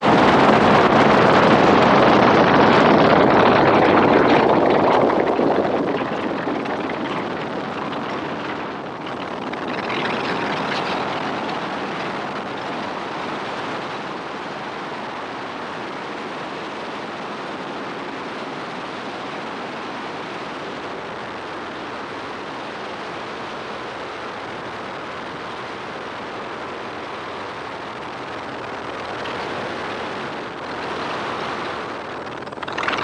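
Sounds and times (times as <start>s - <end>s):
helicopter noise: 0.0s - 14.7s, 26.2s - 33.0s
wind rushing on microphone: 0.0s - 33.0s.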